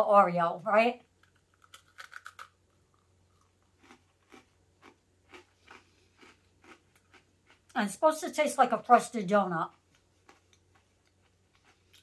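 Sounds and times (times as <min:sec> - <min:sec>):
cookie being bitten: 0:01.2 - 0:07.8
soft crunching chewing: 0:01.2 - 0:07.8, 0:09.6 - 0:12.0.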